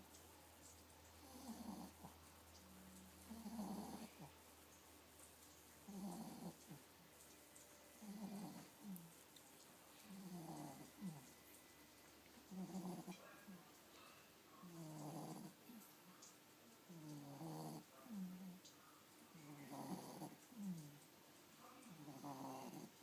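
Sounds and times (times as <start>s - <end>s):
dog snoring softly: 1.1s - 4.5s, 5.8s - 6.9s, 7.9s - 9.2s, 9.9s - 11.8s, 12.4s - 16.2s, 16.8s - 21.0s, 21.6s - 23.0s.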